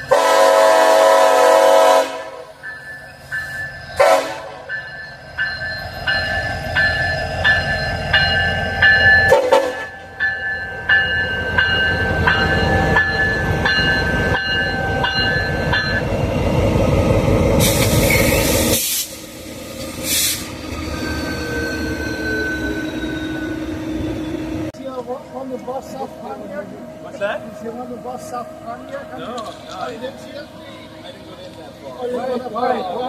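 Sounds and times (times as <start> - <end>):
train rumbling past: 0.0 - 33.0
bell ringing: 2.6 - 4.0, 4.7 - 16.1
loud rushing hiss: 17.5 - 20.7.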